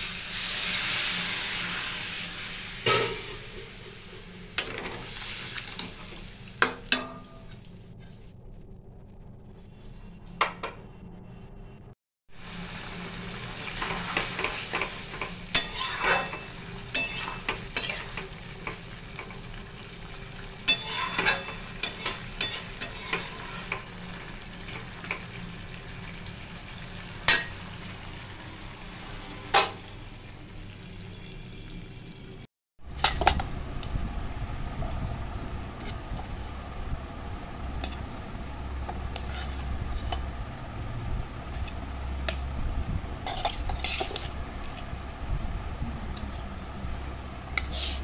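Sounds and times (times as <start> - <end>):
curry sizzling: 0.0 - 7.8, 12.4 - 32.5
metal spatula scraping pan: 13.8 - 18.4, 20.7 - 23.9, 38.9 - 40.2, 43.3 - 44.8, 47.6 - 48.0.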